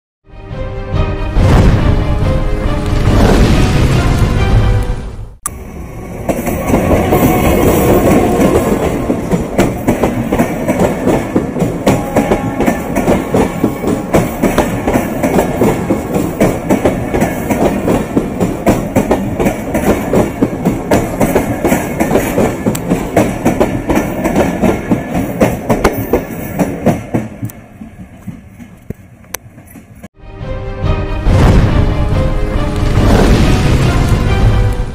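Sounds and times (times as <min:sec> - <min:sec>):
diesel locomotive passing: 0:00.3 - 0:34.9
train wheels clattering over rail joints: 0:06.3 - 0:30.1.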